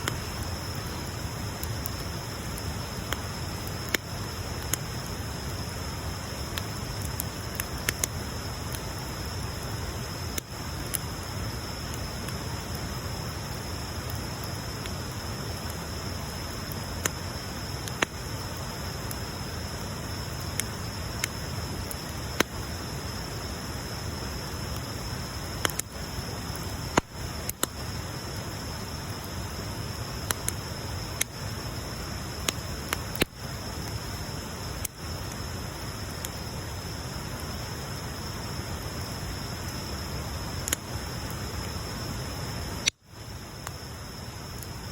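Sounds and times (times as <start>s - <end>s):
bonfire hissing: 0.0s - 44.9s
fire crackles and pops: 0.0s - 44.9s.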